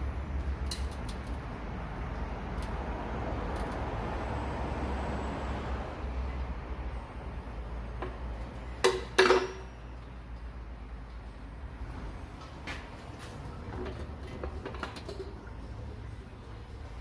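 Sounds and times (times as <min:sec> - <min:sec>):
low background noise: 0:00.0 - 0:17.0.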